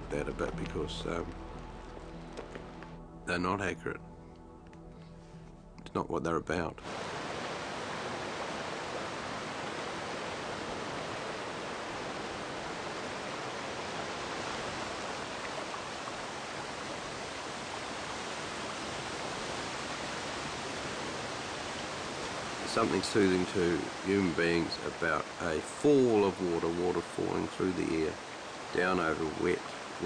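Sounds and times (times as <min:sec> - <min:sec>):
waterfall rushing into pool: 0:06.8 - 0:30.0.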